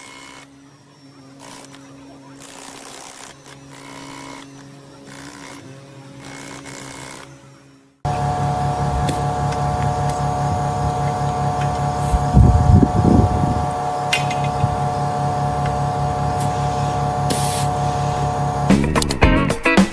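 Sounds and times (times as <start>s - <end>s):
machine motor humming: 0.0s - 19.6s
loud rumble: 8.1s - 19.2s.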